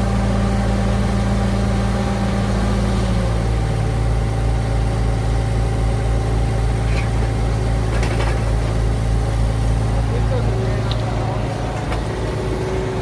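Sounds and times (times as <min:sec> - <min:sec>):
diesel engine of excavator running: 0:00.0 - 0:13.0.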